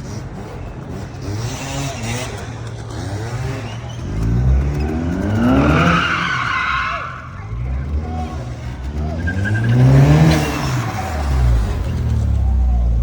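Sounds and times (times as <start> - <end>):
car engine revving hard: 0.0 - 13.0
tyres squealing: 3.4 - 13.0.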